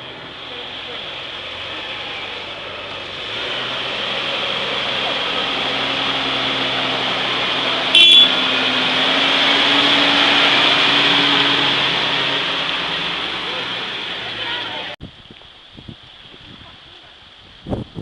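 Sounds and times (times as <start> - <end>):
vehicle engine running: 0.0 - 15.0
brief loud tone: 8.0 - 8.4.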